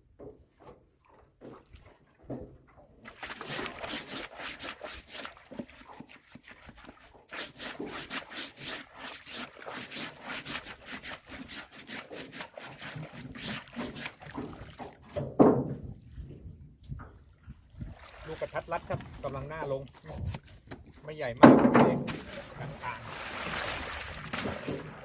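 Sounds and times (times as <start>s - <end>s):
bamboo trap scraping and rattling: 3.2s - 14.5s
loud knock: 15.4s - 15.8s, 21.4s - 22.2s.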